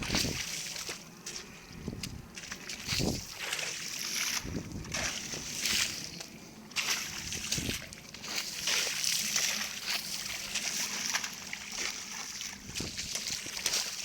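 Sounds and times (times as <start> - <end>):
wading splashes in water: 0.0 - 14.0.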